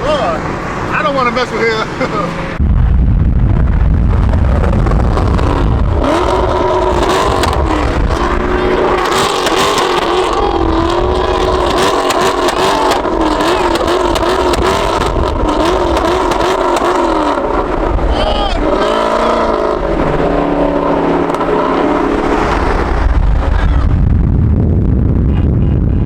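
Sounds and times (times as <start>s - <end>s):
car engines revving: 0.0s - 26.0s
deep rumble: 2.3s - 26.0s.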